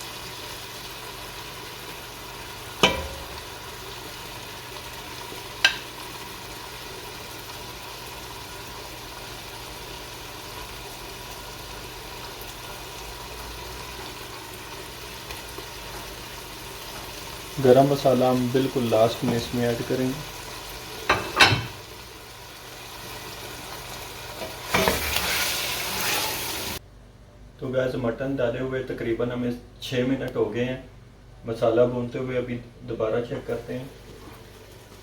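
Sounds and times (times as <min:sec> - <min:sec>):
meat sizzling in hot oil: 0:00.0 - 0:26.8.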